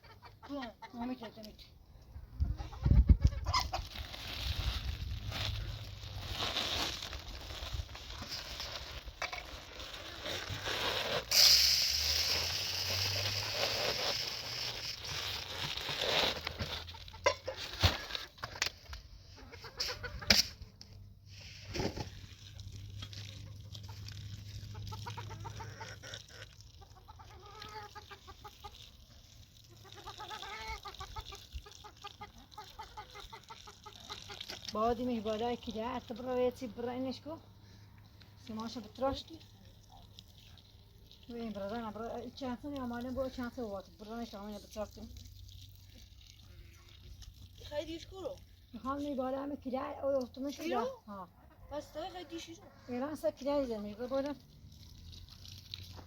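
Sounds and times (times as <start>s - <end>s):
chickens clucking: 0.0s - 4.1s, 16.7s - 18.4s, 19.2s - 20.5s, 23.4s - 29.0s, 29.7s - 34.7s, 50.7s - 53.0s.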